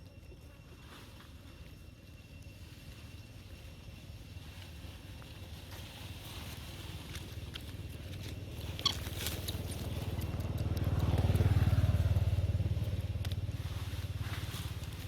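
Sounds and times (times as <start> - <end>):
vehicle engine passing by: 8.1 - 15.0.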